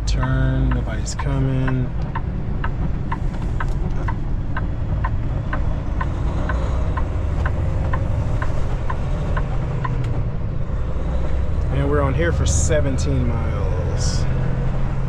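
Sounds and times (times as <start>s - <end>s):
diesel engine rumble: 0.0s - 15.0s
turn signal clicking: 0.0s - 15.0s.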